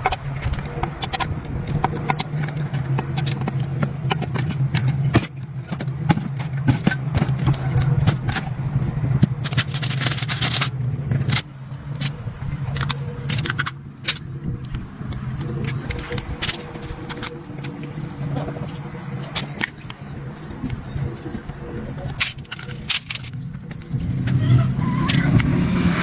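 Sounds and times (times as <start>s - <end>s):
steady low hum: 0.0s - 26.0s
metal parts clinking and scraping: 9.4s - 14.3s, 22.1s - 23.4s.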